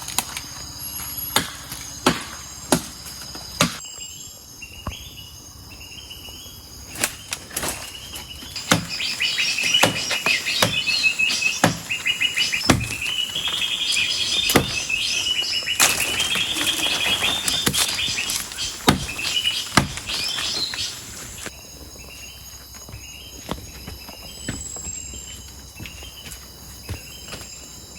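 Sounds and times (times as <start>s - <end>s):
bird chirping in trills: 3.5s - 22.4s
sharp knocks: 17.6s - 20.4s.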